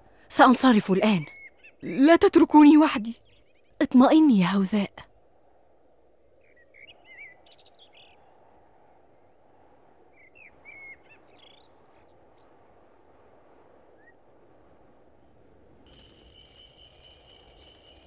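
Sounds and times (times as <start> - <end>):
faint birdsong: 0.0 - 4.1, 6.3 - 12.9.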